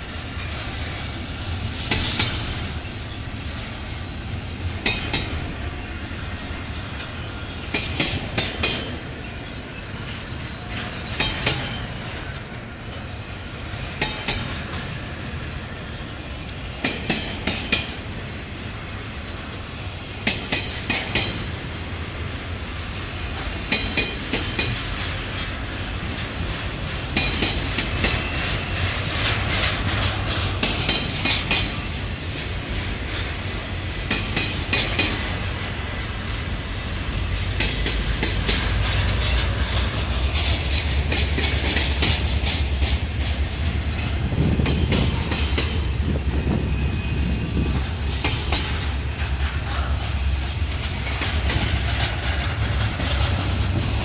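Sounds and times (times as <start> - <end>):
low train rumble: 0.0 - 54.0
train wheels clicking over rail joints: 0.0 - 54.0
wheel squeal: 45.7 - 54.0.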